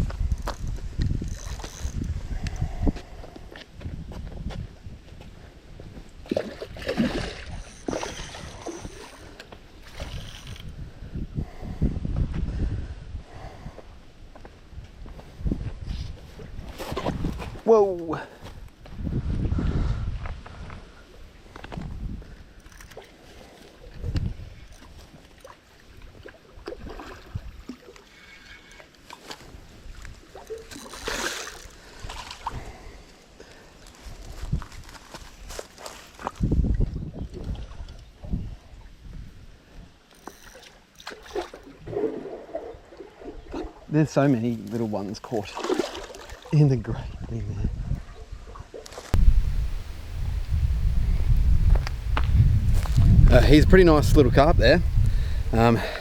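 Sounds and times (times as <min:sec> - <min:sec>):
fish thrashing in water: 0:06.3 - 0:09.3, 0:30.3 - 0:32.6, 0:45.5 - 0:46.5.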